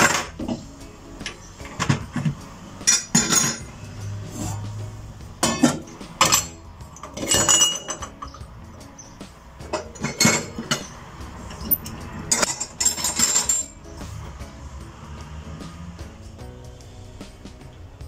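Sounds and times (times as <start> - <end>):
clinks and knocks of hard objects: 0.0 - 4.2, 5.4 - 13.8.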